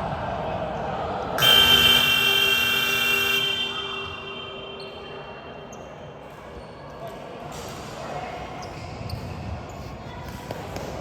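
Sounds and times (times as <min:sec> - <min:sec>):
scoreboard buzzer horn: 0:01.4 - 0:04.8.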